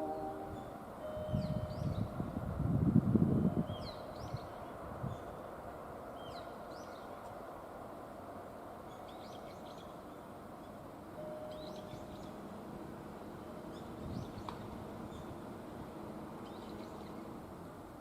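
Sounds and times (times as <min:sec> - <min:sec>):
small birds chirping: 0:16.4 - 0:17.3.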